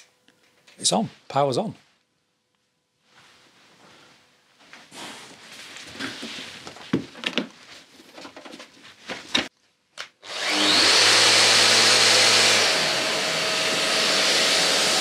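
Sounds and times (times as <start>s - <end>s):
dust extractor motor running: 10.2s - 15.0s.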